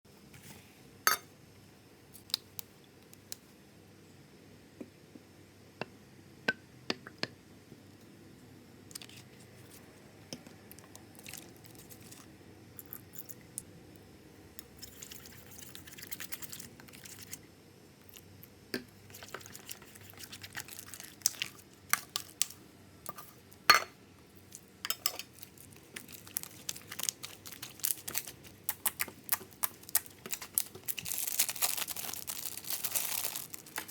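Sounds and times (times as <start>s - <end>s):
crinkling: 24.4s - 33.9s.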